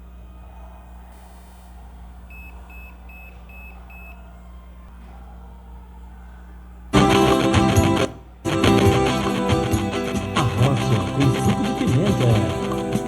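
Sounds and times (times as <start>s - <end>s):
short electronic beeps: 2.3s - 4.2s
music from cd player: 7.0s - 13.0s.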